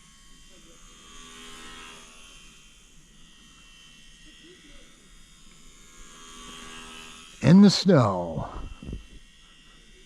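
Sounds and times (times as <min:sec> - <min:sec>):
rc plane motor buzzing: 0:00.0 - 0:07.4.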